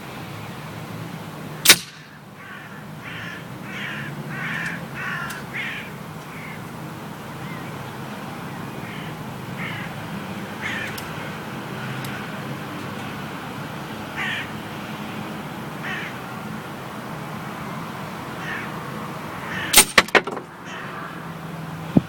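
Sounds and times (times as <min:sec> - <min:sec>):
air rifle shot: 0:01.6 - 0:02.1
bird harsh calls: 0:02.0 - 0:06.7, 0:07.4 - 0:11.0, 0:14.2 - 0:14.5, 0:15.8 - 0:16.2, 0:18.4 - 0:18.8, 0:19.4 - 0:19.8, 0:20.6 - 0:21.1.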